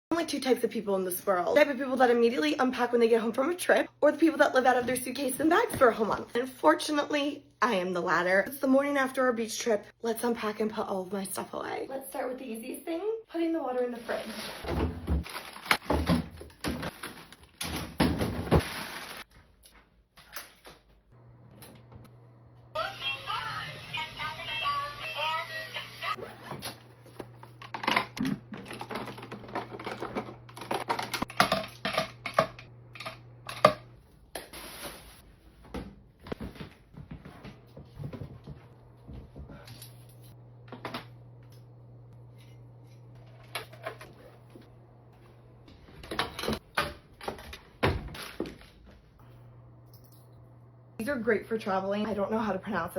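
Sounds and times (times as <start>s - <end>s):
objects knocked and set down: 27.4s - 33.8s.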